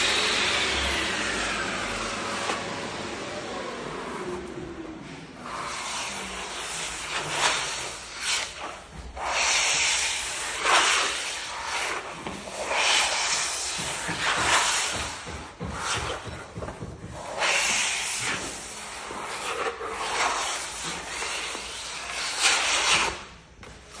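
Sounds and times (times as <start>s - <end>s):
scraping on parquet floor: 5.6s - 24.0s.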